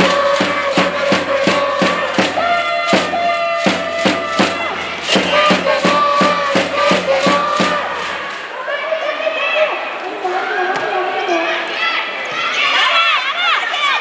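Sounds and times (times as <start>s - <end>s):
rapid claps or thundersticks: 0.0s - 8.5s
crowd chanting: 0.0s - 8.8s.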